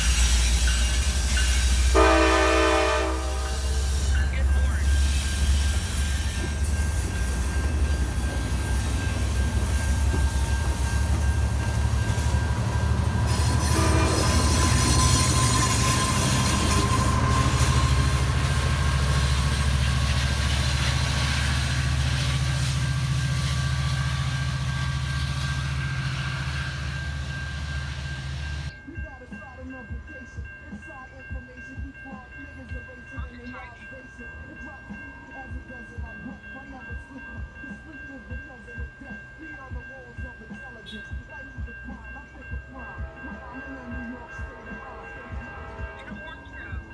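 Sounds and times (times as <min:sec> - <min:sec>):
high wheel squeal: 0:00.0 - 0:28.7
locomotive engine drone: 0:00.0 - 0:28.7, 0:41.9 - 0:46.9
rolling rail noise: 0:00.0 - 0:29.8, 0:30.4 - 0:46.9.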